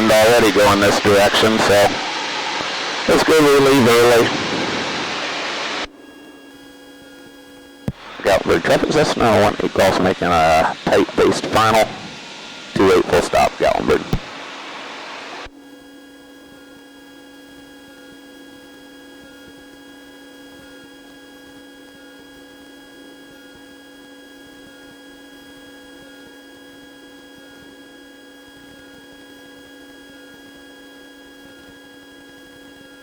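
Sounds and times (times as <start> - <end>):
electrical hum: 0.0 - 15.5.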